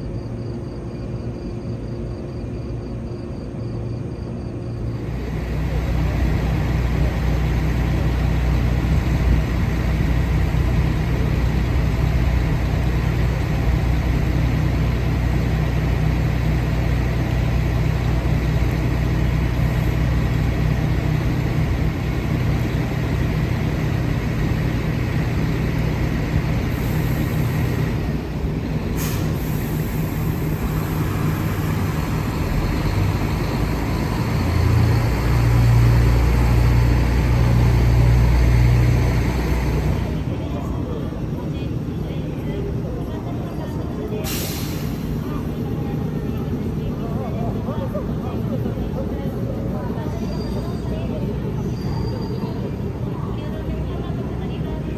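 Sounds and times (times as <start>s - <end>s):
electric train humming: 0.0s - 51.6s.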